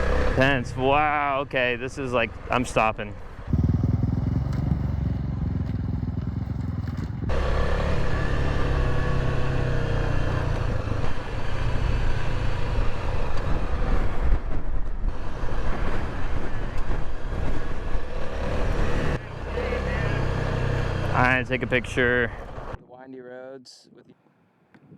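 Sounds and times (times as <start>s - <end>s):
wind and road noise: 0.0s - 22.8s
motorcycle engine running: 3.4s - 13.6s, 17.3s - 22.8s.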